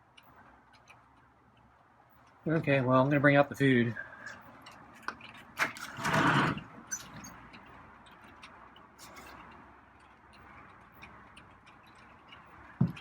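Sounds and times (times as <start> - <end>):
knocks: 12.8 - 13.0.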